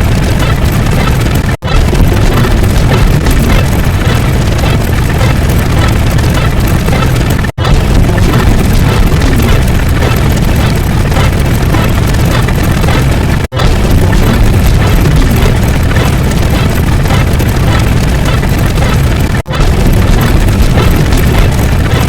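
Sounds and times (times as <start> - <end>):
loud dense rumbling: 0.0 - 22.0.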